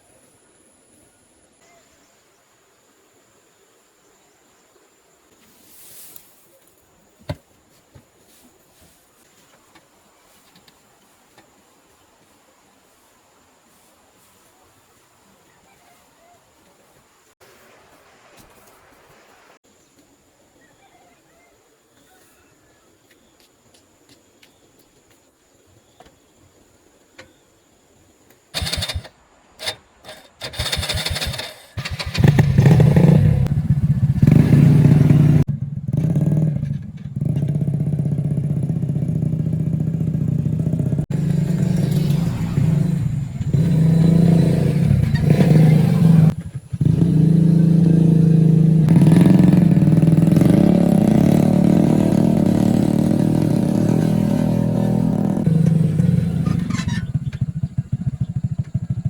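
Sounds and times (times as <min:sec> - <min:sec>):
motorbike engine starting and revving: 0:28.6 - 0:59.0.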